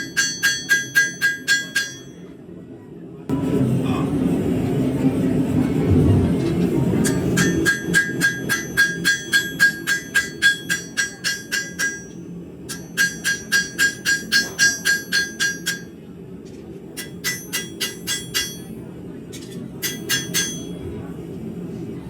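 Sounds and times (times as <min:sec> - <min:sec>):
hammer striking steel on anvil: 0:00.0 - 0:02.3, 0:07.0 - 0:16.0, 0:17.0 - 0:20.8
low rumble: 0:03.3 - 0:07.6.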